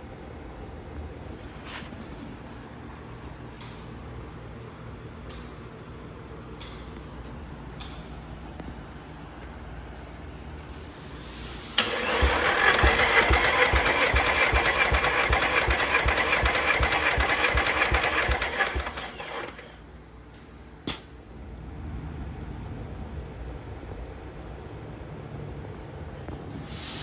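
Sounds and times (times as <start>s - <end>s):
engine cranking on starter motor: 10.8s - 19.8s
sharp click: 20.4s - 21.2s.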